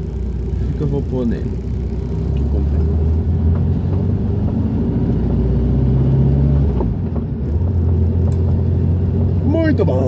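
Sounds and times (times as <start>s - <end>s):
car engine low rumble: 0.0s - 10.0s.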